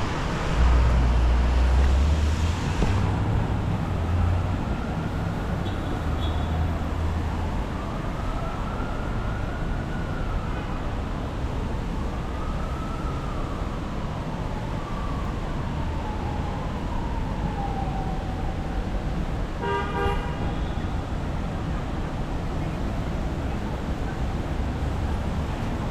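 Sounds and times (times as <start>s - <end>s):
emergency siren wailing: 0.0s - 19.6s, 20.4s - 25.9s
traffic rumble: 0.0s - 25.9s
car horn toot: 19.6s - 20.8s.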